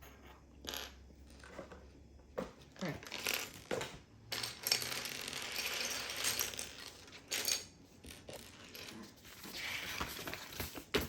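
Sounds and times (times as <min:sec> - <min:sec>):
plastic bricks clattering: 0:02.8 - 0:09.3.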